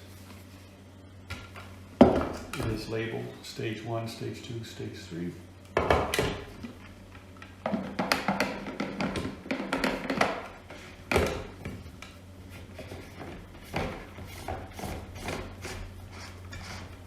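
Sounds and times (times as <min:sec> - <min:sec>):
plastic knocks and clatter: 0:07.6 - 0:10.5.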